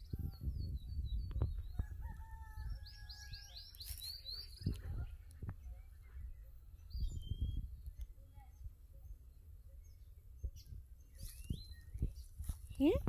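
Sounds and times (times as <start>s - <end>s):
microphone rumble: 0.0s - 2.8s
bird singing: 0.0s - 13.0s.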